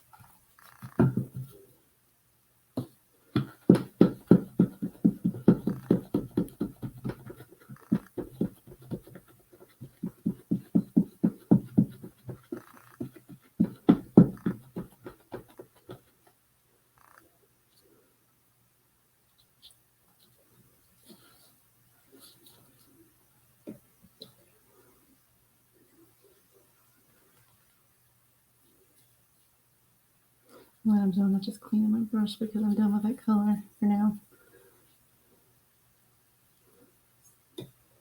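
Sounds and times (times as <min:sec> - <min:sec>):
brush dabbing on wood: 0:03.4 - 0:16.2.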